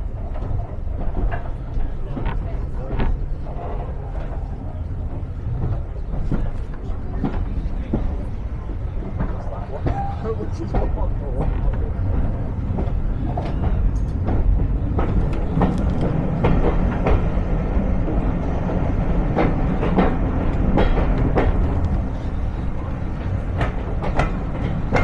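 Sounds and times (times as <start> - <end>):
train wheels rumbling on rails: 0.0 - 25.0
track clicks and knocks: 12.7 - 25.0.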